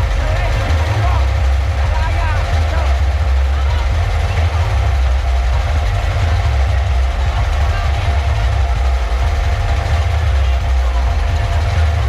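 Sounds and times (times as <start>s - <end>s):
deep bass rumble: 0.0s - 12.0s
faint crowd noise: 0.0s - 12.0s.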